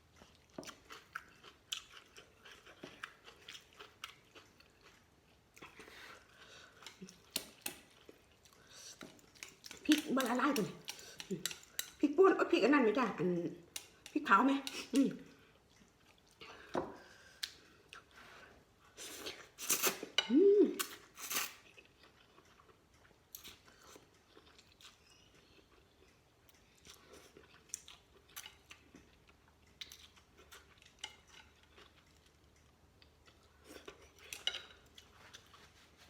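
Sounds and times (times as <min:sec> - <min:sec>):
person chewing: 0:00.0 - 0:12.0, 0:18.8 - 0:36.0.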